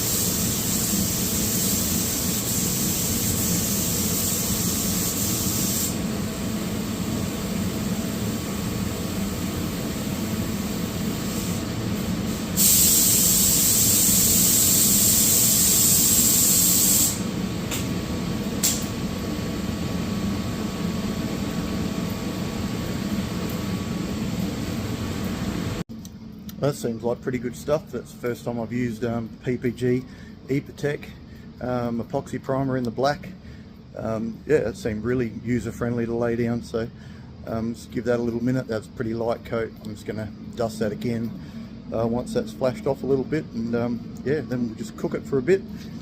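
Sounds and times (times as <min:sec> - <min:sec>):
air spray gun hissing: 0:00.0 - 0:18.0
steady low hum: 0:00.0 - 0:46.0.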